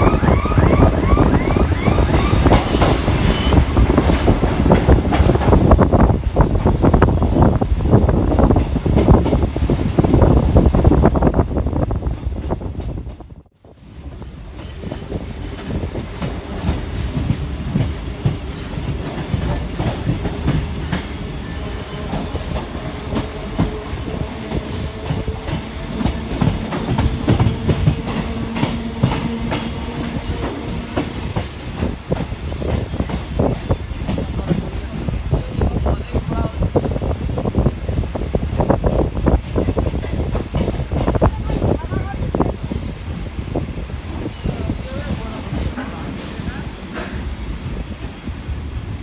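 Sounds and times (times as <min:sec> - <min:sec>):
train rumble: 0:00.0 - 0:49.0
train wheels clicking over rail joints: 0:13.8 - 0:37.6, 0:38.2 - 0:42.7, 0:44.1 - 0:49.0.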